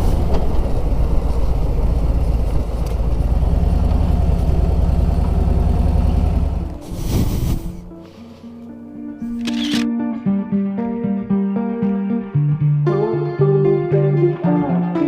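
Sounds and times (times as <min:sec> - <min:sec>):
motorcycle engine cruising: 0:00.0 - 0:09.9.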